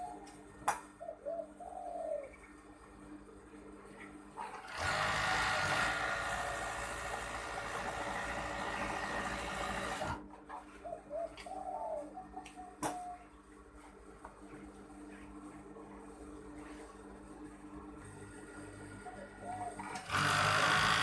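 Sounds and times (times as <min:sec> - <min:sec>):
dove cooing faintly: 0:00.0 - 0:03.2, 0:10.5 - 0:13.9, 0:18.6 - 0:20.1
sewing machine running: 0:04.6 - 0:10.2, 0:19.9 - 0:21.0.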